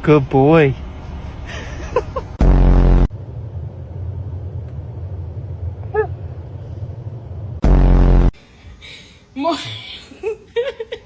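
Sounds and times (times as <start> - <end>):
steady low rumble: 0.0 - 9.4
dog whimpering: 5.9 - 6.2.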